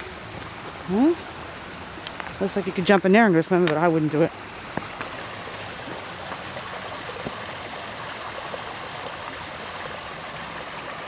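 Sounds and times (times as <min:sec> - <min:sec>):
creek water flowing over rocks: 0:00.0 - 0:11.0.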